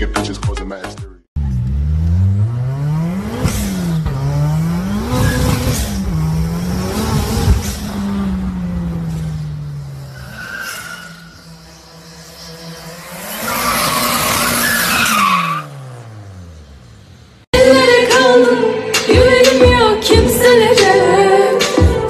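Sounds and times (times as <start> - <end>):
car engine revving: 1.4 - 18.1.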